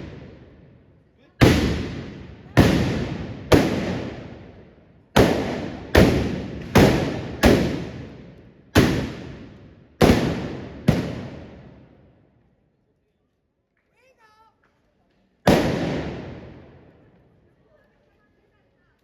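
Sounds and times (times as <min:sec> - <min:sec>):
loud blasts with echoes: 0:00.0 - 0:12.1, 0:15.5 - 0:17.0.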